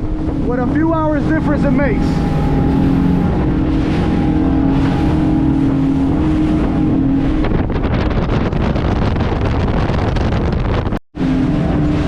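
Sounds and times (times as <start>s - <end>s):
boat engine drone: 0.0s - 12.0s
wind on microphone: 0.0s - 12.0s.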